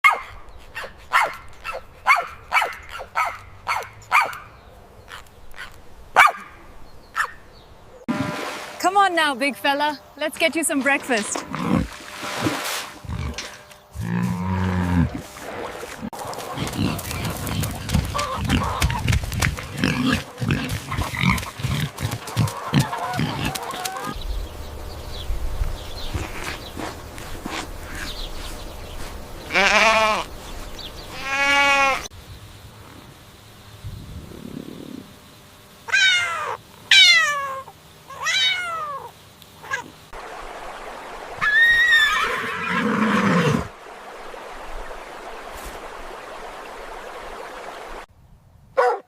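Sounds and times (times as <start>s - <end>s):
dog barking: 0.0s - 4.5s, 6.2s - 6.6s, 7.2s - 7.4s, 48.8s - 49.0s
pigs grunting: 11.4s - 12.0s, 13.0s - 15.3s, 15.9s - 24.2s
high-pitched pig calls: 19.8s - 24.2s, 35.9s - 39.9s.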